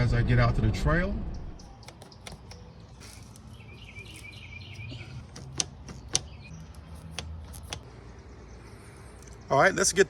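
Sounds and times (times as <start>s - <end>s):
bird chirps: 1.4s - 9.6s
sharp clicks: 5.3s - 7.9s.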